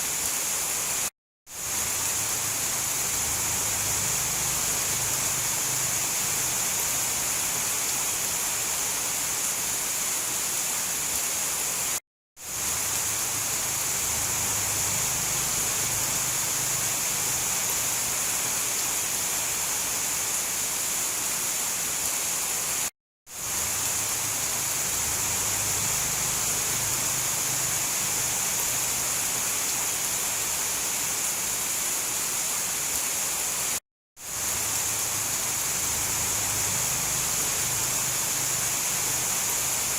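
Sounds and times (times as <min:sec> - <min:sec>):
dense rainfall: 0:00.0 - 0:39.9.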